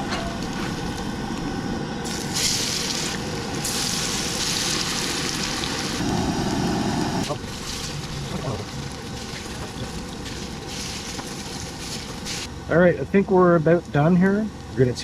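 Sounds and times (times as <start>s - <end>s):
steady low rumble: 0.0s - 4.7s, 5.8s - 11.8s
pancakes sizzling in oil: 2.0s - 6.6s, 7.3s - 12.5s.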